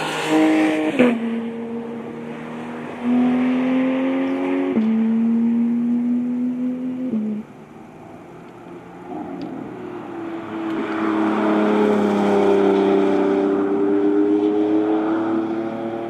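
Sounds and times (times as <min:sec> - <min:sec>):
road and tyre hiss: 0:00.0 - 0:03.2
car engine approaching: 0:00.0 - 0:16.0.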